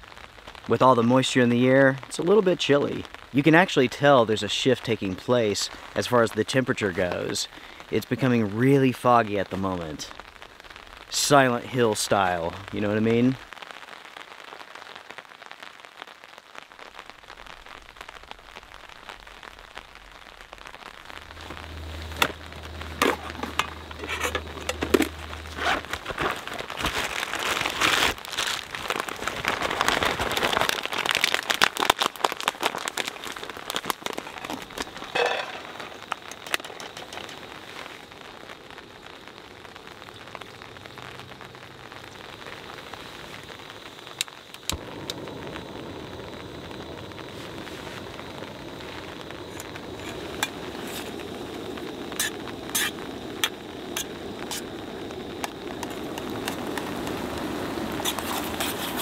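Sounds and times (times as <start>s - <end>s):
rain pattering on a tarp: 0.0s - 59.0s
nylon sack rustling: 20.9s - 36.1s, 56.1s - 59.0s.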